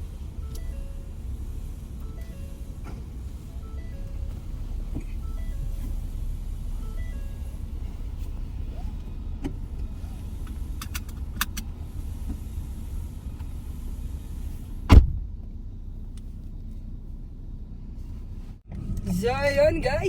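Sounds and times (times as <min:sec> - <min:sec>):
car rumbling: 0:00.0 - 0:20.0
loud thump: 0:14.9 - 0:15.3.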